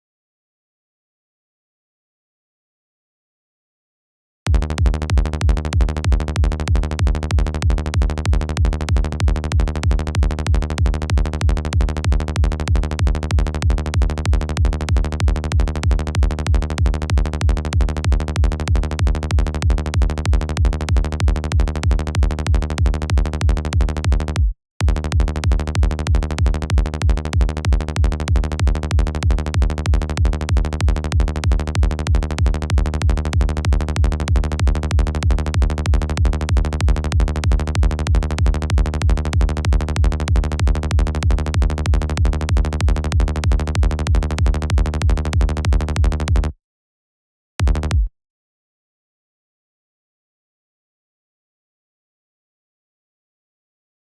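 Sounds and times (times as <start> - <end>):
electronic kick drum: 4.5 - 46.5, 47.6 - 48.1
sustained synth bass: 4.5 - 46.6, 47.6 - 48.1.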